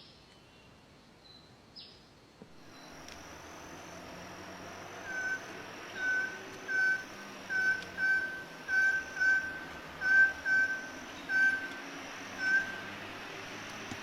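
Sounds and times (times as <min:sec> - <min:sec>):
steady hiss: 0:02.4 - 0:14.0
bird whistled call: 0:05.0 - 0:13.0.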